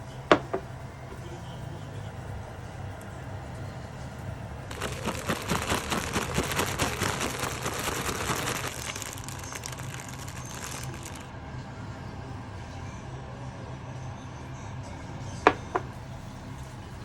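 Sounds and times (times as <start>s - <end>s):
bean sprouts crackling when stirred: 4.7s - 11.3s.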